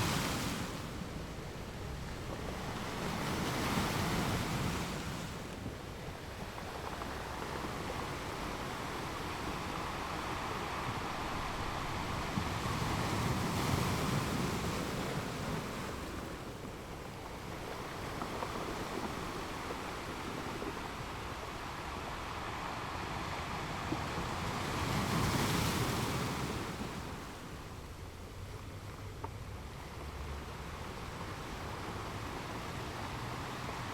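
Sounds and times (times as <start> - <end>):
sea waves breaking on rocks: 0.0 - 28.8.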